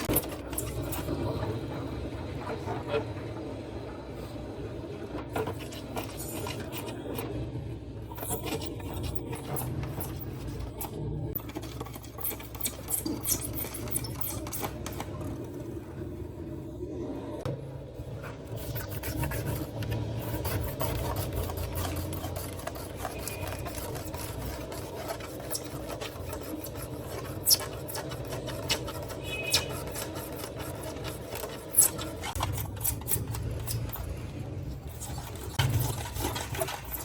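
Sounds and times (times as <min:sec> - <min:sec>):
power tool rasping plastic: 0:18.6 - 0:37.0.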